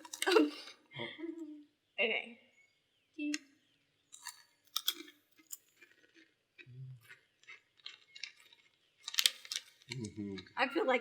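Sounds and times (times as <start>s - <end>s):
crunchy snack chewing: 4.1s - 10.6s.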